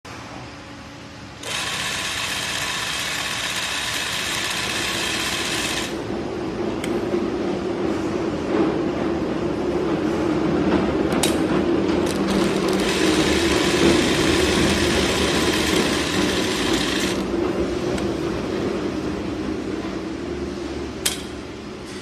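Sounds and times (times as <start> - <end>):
sewing machine humming: 1.4 - 6.0, 12.0 - 17.3.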